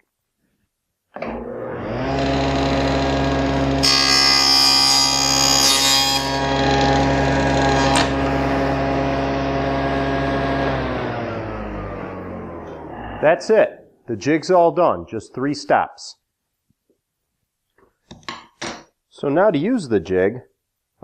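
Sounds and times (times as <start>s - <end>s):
table saw motor running: 1.3s - 12.9s
saw blade cutting wood: 2.0s - 9.0s.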